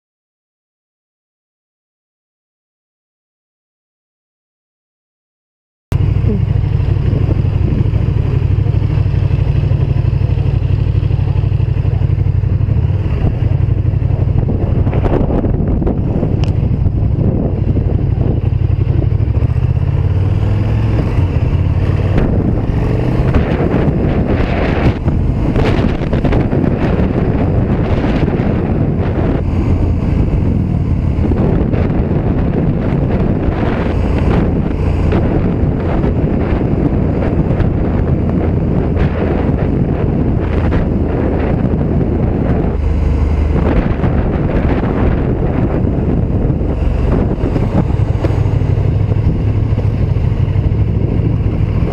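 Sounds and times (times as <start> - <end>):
motorcycle engine running: 5.9 - 51.9
wind noise on microphone: 6.0 - 51.9.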